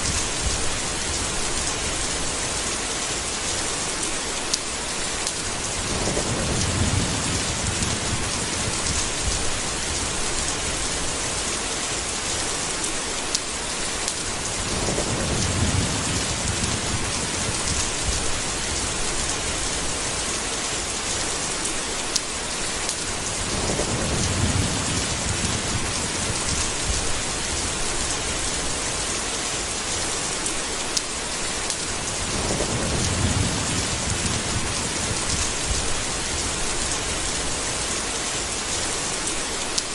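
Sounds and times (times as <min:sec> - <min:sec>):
heavy rain hissing: 0:00.0 - 0:39.9
low thunder rumbles: 0:05.4 - 0:11.5, 0:14.4 - 0:20.2, 0:23.1 - 0:29.1, 0:31.8 - 0:38.0.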